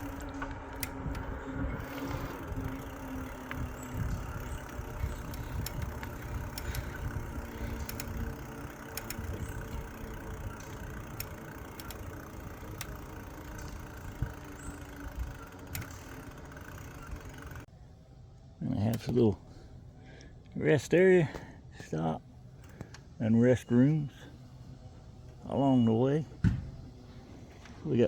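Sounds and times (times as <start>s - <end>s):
wind rumbling on microphone: 0.0s - 11.3s
sharp ticks: 0.0s - 17.7s.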